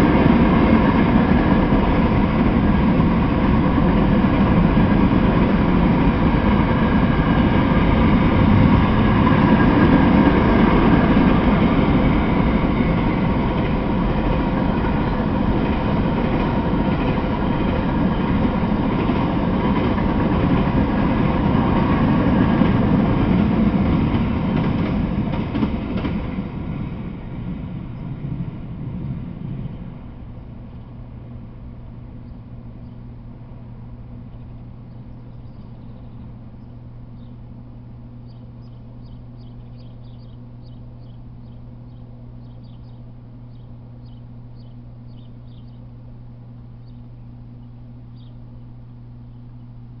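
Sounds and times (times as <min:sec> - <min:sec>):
freight train rumble: 0:00.0 - 0:50.0
steady low hum: 0:00.0 - 0:50.0
birds chirping: 0:29.5 - 0:50.0.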